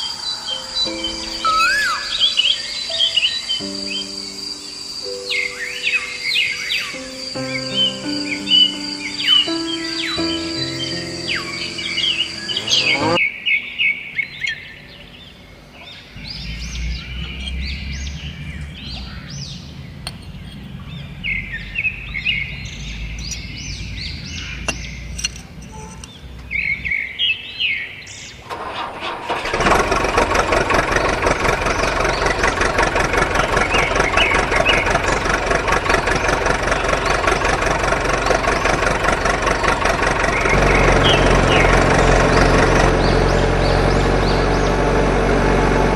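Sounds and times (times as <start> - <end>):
birds chirping: 0.0 - 45.9
motor running loudly: 11.9 - 13.2, 29.6 - 45.9.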